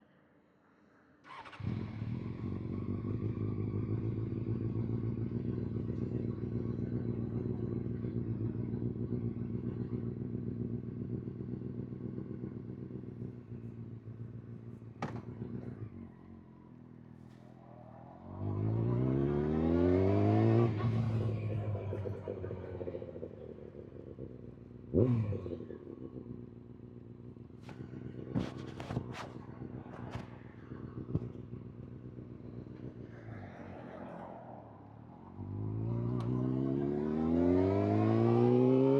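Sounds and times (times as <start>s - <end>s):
motorcycle engine idling: 1.3s - 17.5s, 20.7s - 33.1s
motorcycle engine revving: 1.3s - 38.9s.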